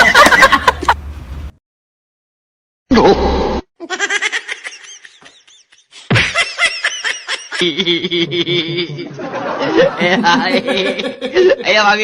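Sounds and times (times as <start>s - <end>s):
person laughing: 3.8s - 11.7s.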